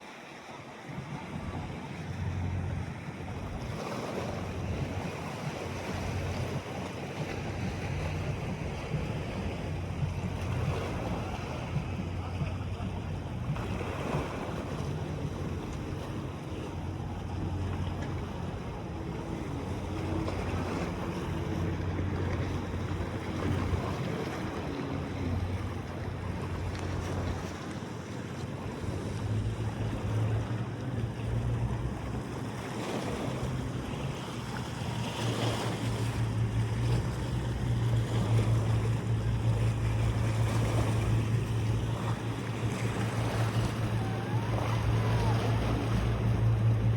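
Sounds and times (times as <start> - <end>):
boat motor droning: 0.0 - 46.9
wind buffeting microphone: 0.9 - 46.9
water washing: 1.4 - 46.9.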